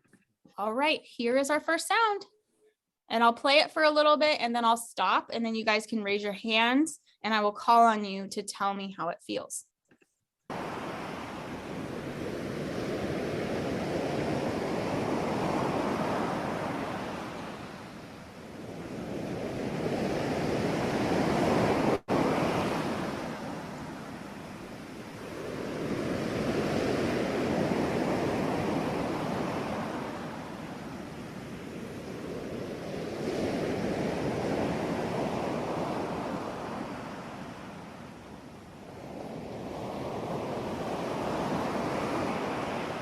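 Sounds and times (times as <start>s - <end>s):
ocean waves washing onto shore: 10.5s - 43.0s.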